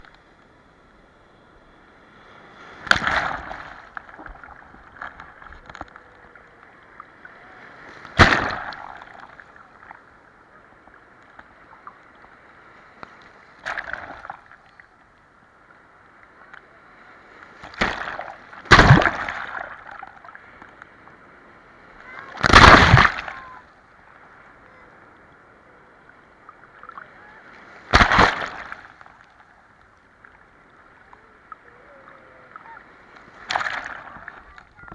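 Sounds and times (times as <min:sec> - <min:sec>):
waves splashing loudly: 0:02.7 - 0:04.3, 0:07.3 - 0:09.4, 0:17.5 - 0:19.9, 0:21.9 - 0:23.6, 0:26.8 - 0:29.4, 0:31.2 - 0:34.9
water washing: 0:27.9 - 0:29.0.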